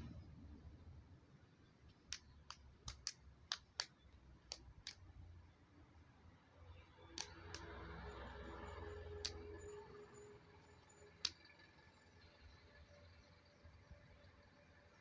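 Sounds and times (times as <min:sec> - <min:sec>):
faint low hum: 0:00.0 - 0:15.0
sharp irregular clicks: 0:01.8 - 0:05.2, 0:07.2 - 0:08.3, 0:09.1 - 0:09.8.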